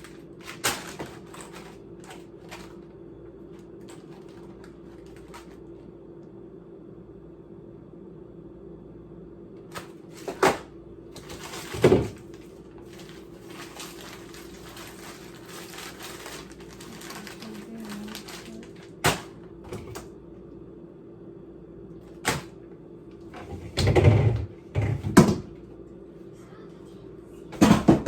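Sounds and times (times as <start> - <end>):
steady low hum: 0.0 - 28.0
rustling: 11.2 - 19.0.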